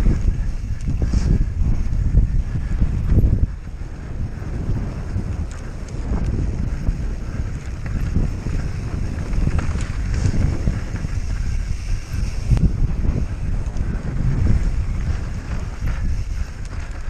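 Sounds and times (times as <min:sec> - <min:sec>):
wind buffeting microphone: 0:00.0 - 0:17.0
bike clicks and knocks: 0:05.0 - 0:17.0.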